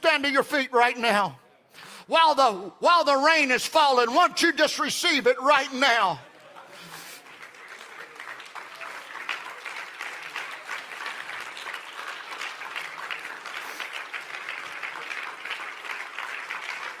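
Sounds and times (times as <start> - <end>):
crowd applauding: 5.5 - 17.0.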